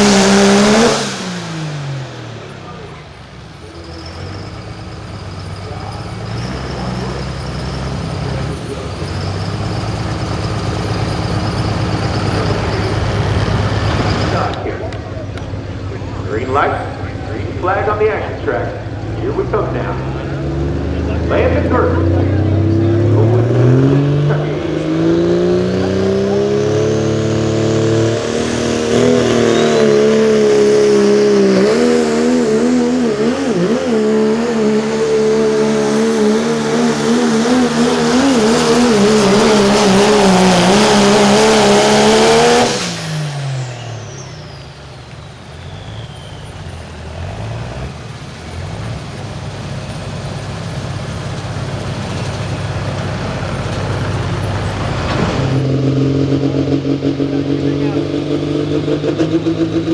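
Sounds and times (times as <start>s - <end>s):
diesel truck engine at full throttle: 0.0s - 59.9s
turbo whistle winding down: 27.8s - 46.9s.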